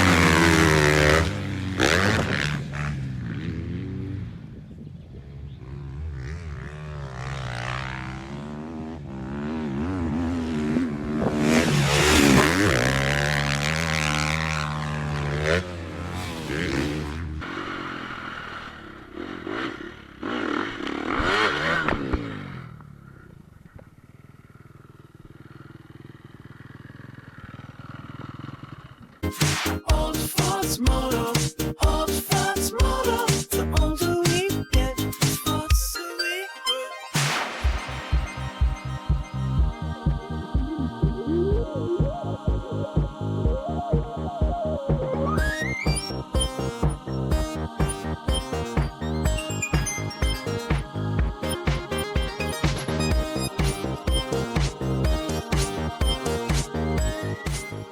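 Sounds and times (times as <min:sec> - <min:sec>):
motocross bikes revving: 0:00.0 - 0:35.6, 0:45.4 - 0:57.9.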